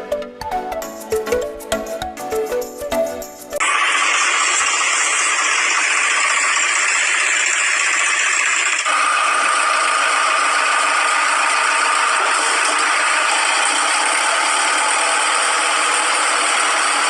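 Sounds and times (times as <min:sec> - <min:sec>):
machine motor running with rattle: 0:03.6 - 0:17.0.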